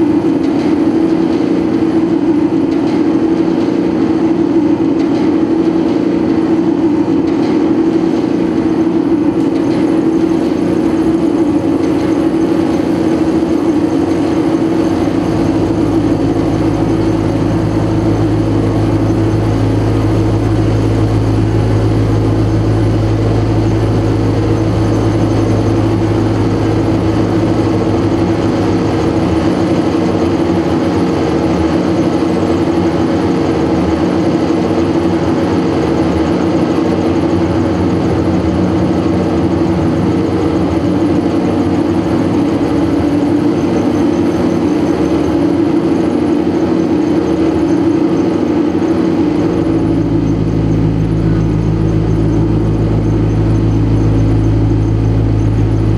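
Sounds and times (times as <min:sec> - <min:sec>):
noise music drone: 0:00.0 - 0:55.9
deep low hum: 0:09.0 - 0:29.6, 0:48.8 - 0:55.9.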